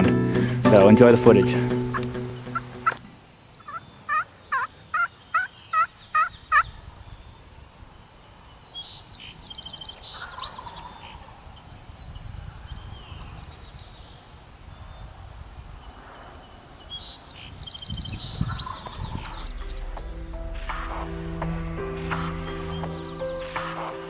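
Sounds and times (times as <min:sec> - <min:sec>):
songbird chirps and trills: 0:00.8 - 0:24.0
turkey gobbling: 0:01.9 - 0:03.0, 0:03.6 - 0:06.6.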